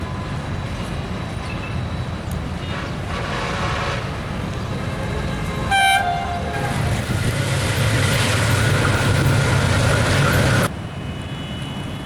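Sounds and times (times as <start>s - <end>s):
locomotive horn blowing: 2.6s - 7.1s.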